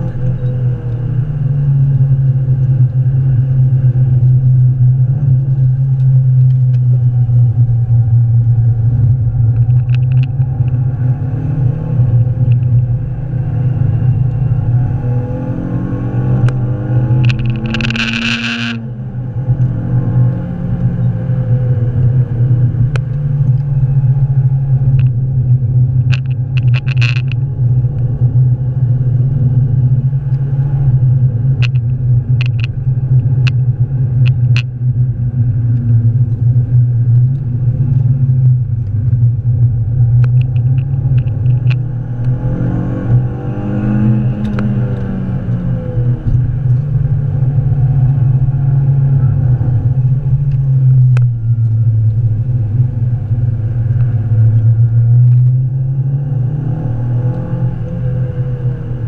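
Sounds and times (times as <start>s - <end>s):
car engine droning in cabin: 0.0s - 59.0s.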